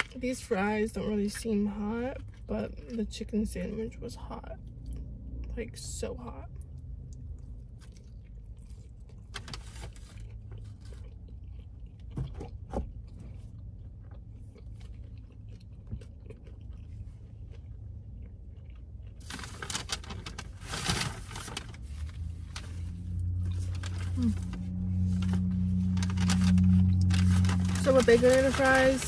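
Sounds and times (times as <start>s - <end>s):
close-up chewing: 0.0s - 4.0s, 6.5s - 20.6s
low steady hum: 0.0s - 29.0s
paper bag crinkling: 19.2s - 29.0s.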